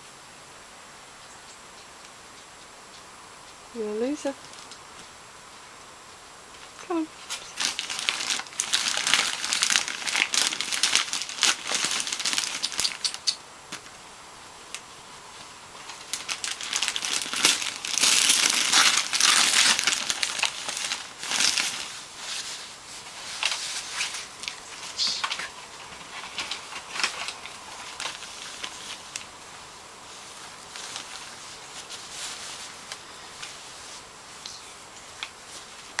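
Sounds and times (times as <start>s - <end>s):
wrapping paper crinkling and tearing: 6.8s - 13.9s, 14.7s - 34.4s.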